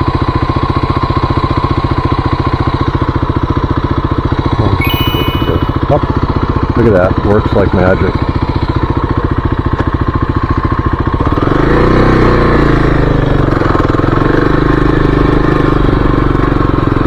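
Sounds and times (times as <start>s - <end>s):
motorcycle engine idling and revving: 8.4s - 17.0s.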